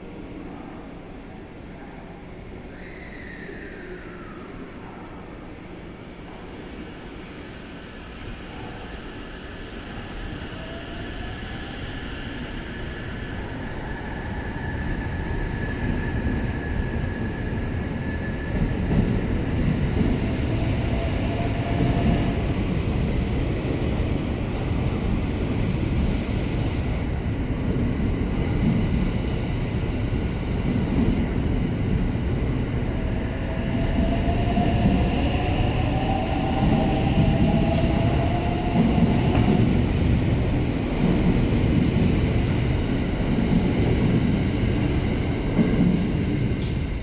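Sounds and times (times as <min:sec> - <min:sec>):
train wheels rumbling on rails: 0:09.6 - 0:47.0.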